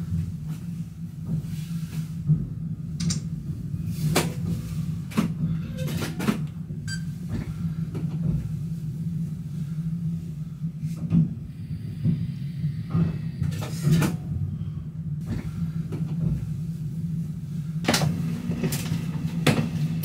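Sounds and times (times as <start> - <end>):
train cab low hum: 0.0 - 20.0.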